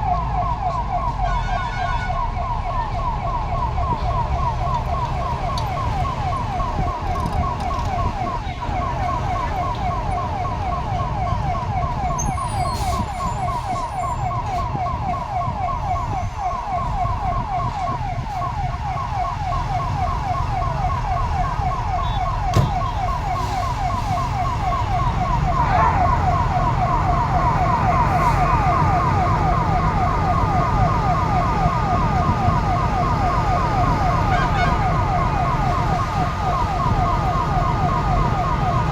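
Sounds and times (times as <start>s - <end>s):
electronic siren yelping: 0.0s - 38.9s
engine and traffic rumble: 0.0s - 38.9s
steady siren tone: 0.0s - 38.9s.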